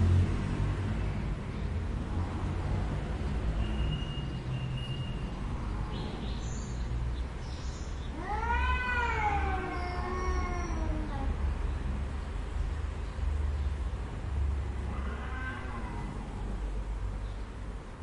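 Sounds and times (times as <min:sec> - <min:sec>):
cat meowing: 0:08.1 - 0:11.4, 0:14.8 - 0:16.6.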